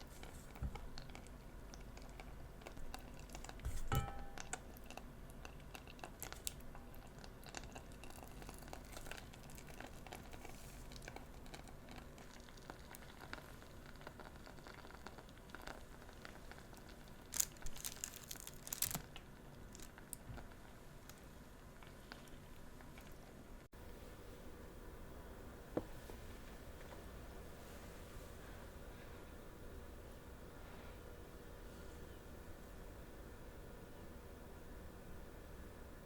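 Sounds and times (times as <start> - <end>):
candied sugar shell crunching: 17.2 - 20.2.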